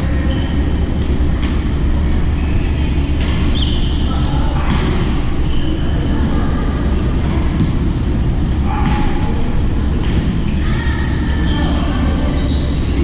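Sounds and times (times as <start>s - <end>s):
shoe squeaks: 2.3s - 2.8s, 3.5s - 4.2s, 5.4s - 6.0s, 10.4s - 13.0s.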